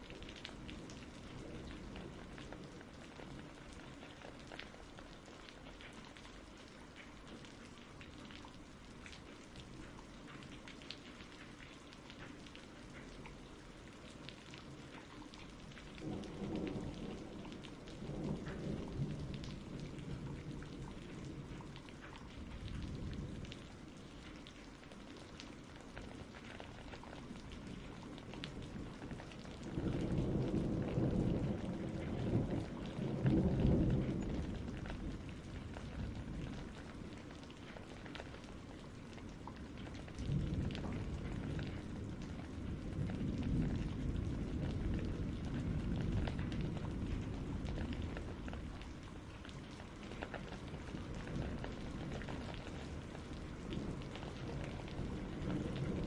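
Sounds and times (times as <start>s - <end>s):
patter of raindrops: 0.0s - 56.0s
steady rain: 0.0s - 56.0s
thunder rumbling low: 15.8s - 23.8s, 25.9s - 49.0s, 49.8s - 56.0s.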